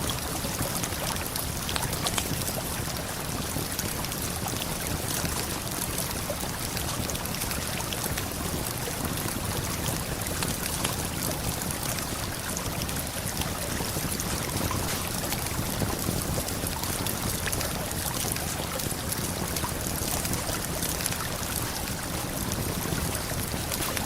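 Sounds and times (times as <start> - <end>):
campfire crackling: 5.6 - 24.0.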